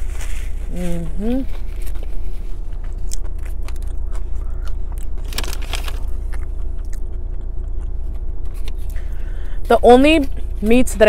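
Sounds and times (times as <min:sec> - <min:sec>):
chewing crunchy chips: 0:00.0 - 0:10.6
low hum: 0:00.0 - 0:11.0.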